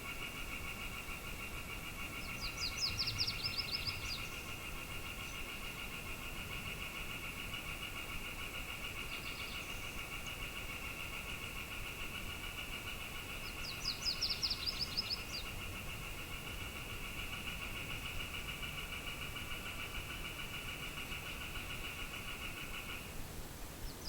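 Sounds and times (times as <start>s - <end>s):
bird chirping: 0.8s - 6.1s, 8.8s - 11.8s, 12.5s - 23.0s.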